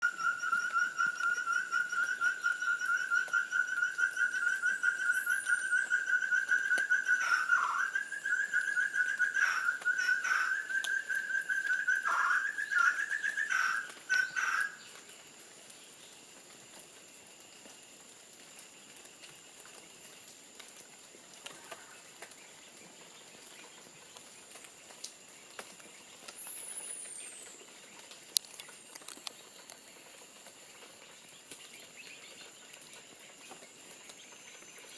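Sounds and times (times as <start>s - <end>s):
partridges calling: 0.1s - 14.8s.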